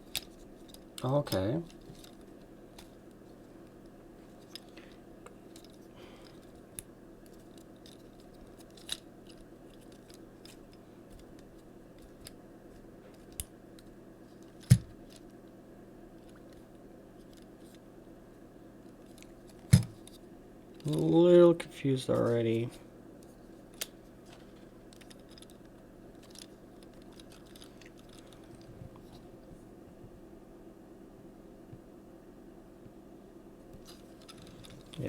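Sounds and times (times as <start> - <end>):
steady low hum: 0.0 - 35.0
plastic toy parts clicking: 5.5 - 10.6, 26.2 - 28.3.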